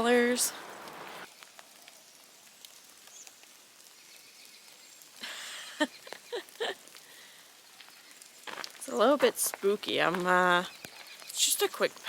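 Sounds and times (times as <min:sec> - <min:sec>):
rain dripping in forest: 0:00.0 - 0:12.0.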